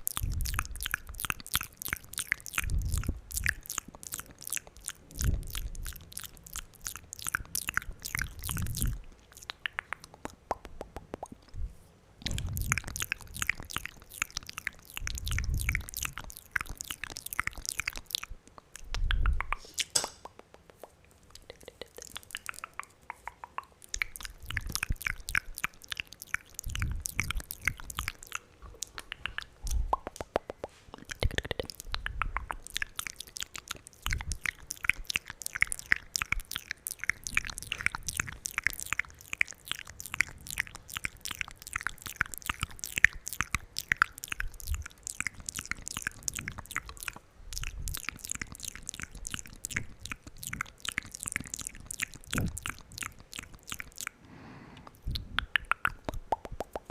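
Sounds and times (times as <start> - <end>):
wet mouth clicks and smacks: 0.0 - 56.9.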